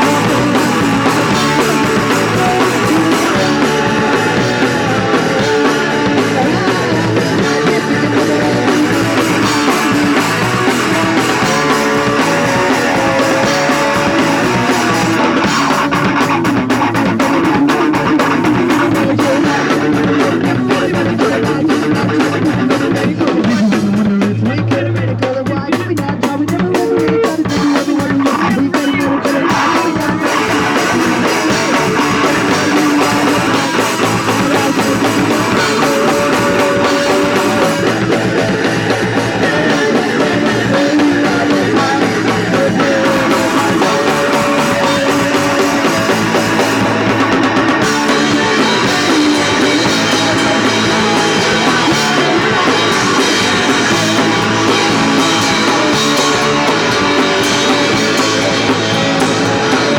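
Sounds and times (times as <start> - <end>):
drum kit: 0.0 - 59.9
electric guitar: 0.0 - 59.9
punk rock band playing: 0.0 - 59.9.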